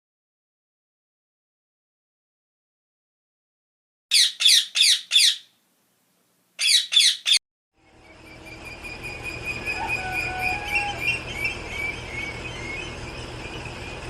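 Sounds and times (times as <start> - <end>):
chorus of birds singing: 4.1 - 5.5, 6.6 - 14.0.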